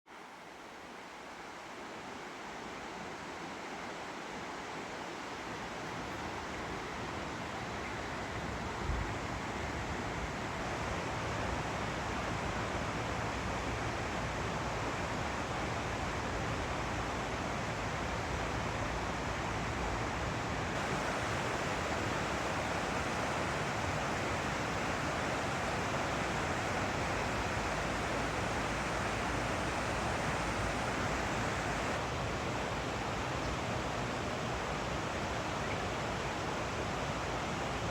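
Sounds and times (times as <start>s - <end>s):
water rushing: 20.5s - 37.9s.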